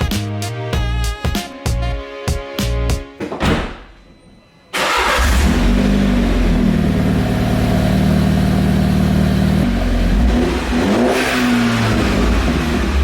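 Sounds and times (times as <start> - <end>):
car engine idling and revving: 4.9 - 13.0.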